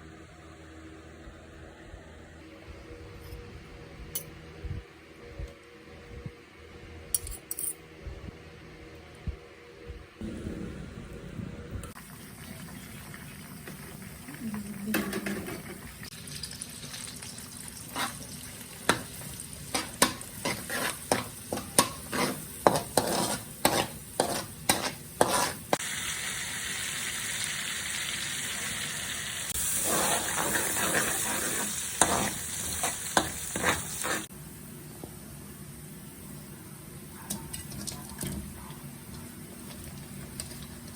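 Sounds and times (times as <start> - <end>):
food sizzling in hot oil: 11.9 - 34.3
sharp knocks and scrapes: 19.8 - 25.7.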